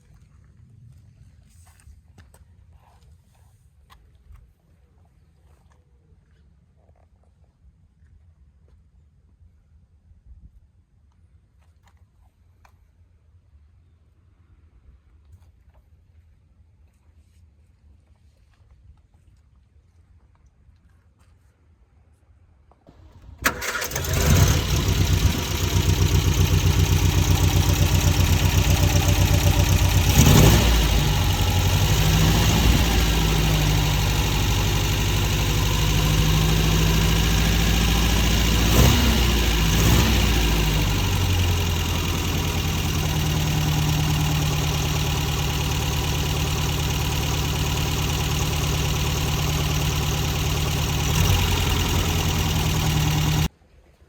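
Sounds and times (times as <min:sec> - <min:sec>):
car engine starting and idling: 0:22.9 - 0:53.5
engine throttle blips: 0:22.9 - 0:53.5.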